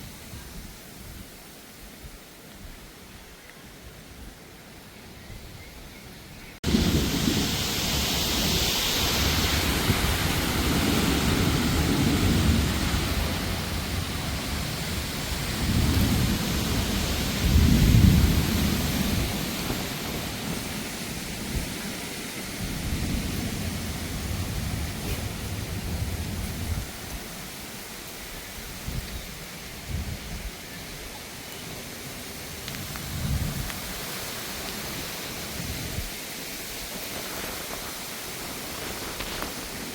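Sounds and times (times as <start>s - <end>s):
rolling thunder: 6.6s - 27.1s
heavy rain: 6.6s - 39.9s.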